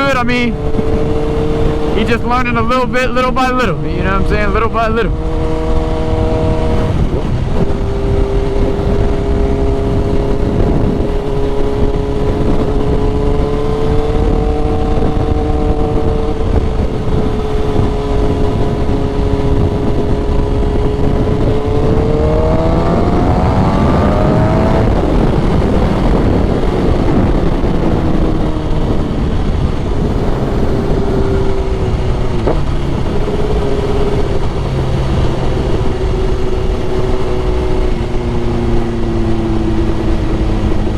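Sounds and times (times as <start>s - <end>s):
motorcycle engine revving: 0.0s - 40.9s
wind rumble: 0.0s - 40.9s.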